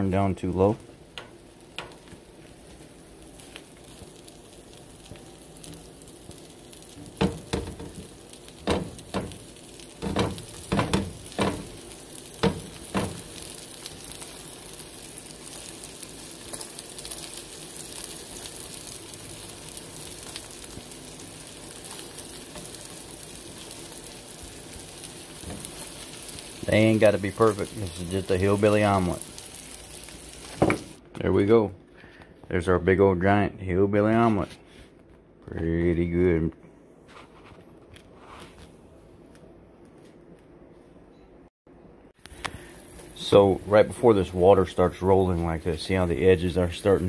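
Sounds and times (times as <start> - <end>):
food sizzling in a skillet: 0.8 - 31.0, 42.2 - 47.0.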